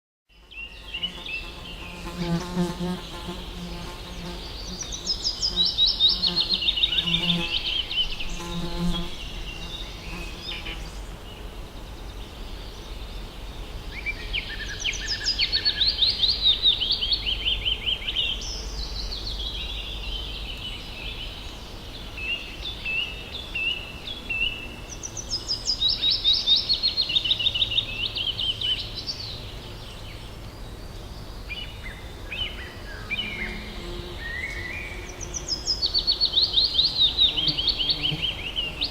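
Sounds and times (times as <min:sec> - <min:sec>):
fly buzzing: 0:00.5 - 0:11.2, 0:33.1 - 0:35.5, 0:37.1 - 0:38.9.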